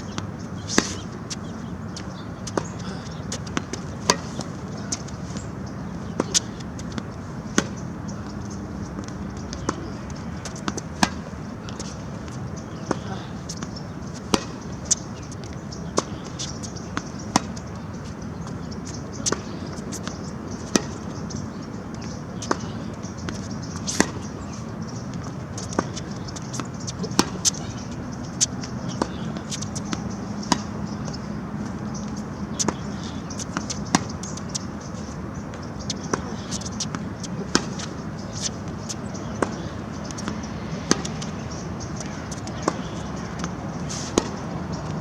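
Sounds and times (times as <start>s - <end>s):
racket striking tennis ball: 2.4s - 5.1s, 14.3s - 15.0s, 23.3s - 24.3s, 25.6s - 31.2s, 31.9s - 34.6s, 35.9s - 41.3s, 42.0s - 44.4s
ball bouncing on court: 22.4s - 24.3s, 25.2s - 34.6s, 35.5s - 41.4s, 42.0s - 44.4s.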